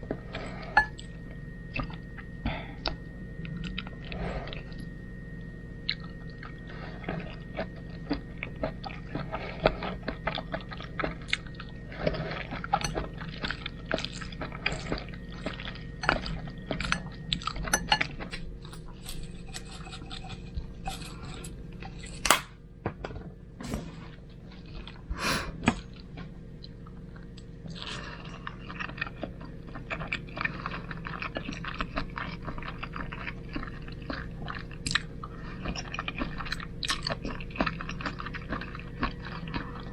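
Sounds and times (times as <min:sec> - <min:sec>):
low hum: 0:00.0 - 0:29.1
chewing and wet mouth clicks: 0:31.0 - 0:35.1, 0:35.7 - 0:39.9.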